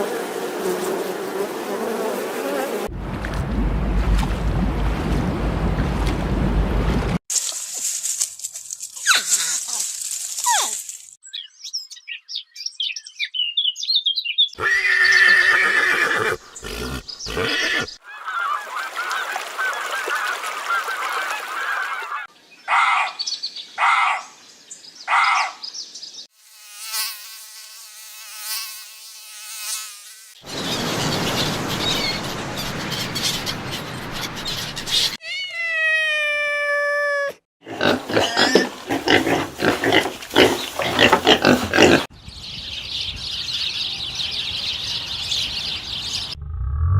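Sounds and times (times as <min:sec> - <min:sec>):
bird chirps: 0:10.5 - 0:15.3, 0:30.4 - 0:35.2.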